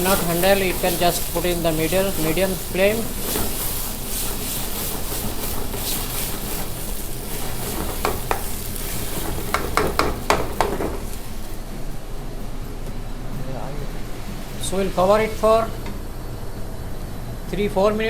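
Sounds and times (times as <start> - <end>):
sauce sizzling in a pan: 0.0 - 12.1, 13.8 - 17.0
spoon knocking against pan: 7.8 - 8.6, 9.2 - 11.1.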